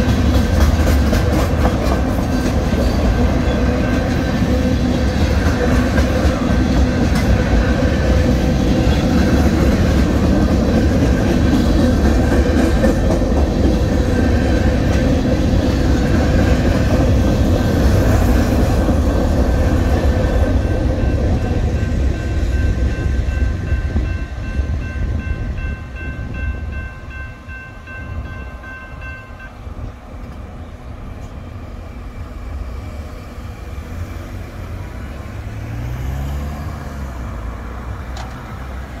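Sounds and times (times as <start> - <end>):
freight cars rumbling over rails: 0.0 - 39.0
crossing bell ringing: 3.2 - 4.8, 20.4 - 30.0
car engine passing: 33.8 - 39.0.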